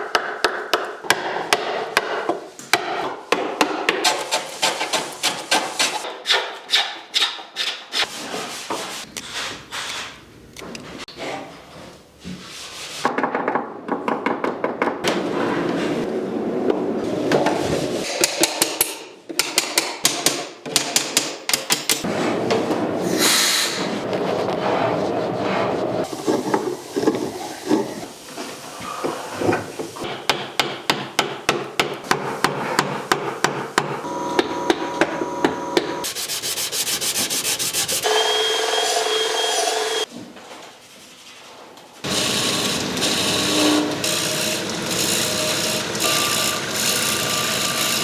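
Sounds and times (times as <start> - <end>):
tool strikes on wood: 0.0 - 4.3, 30.0 - 36.0.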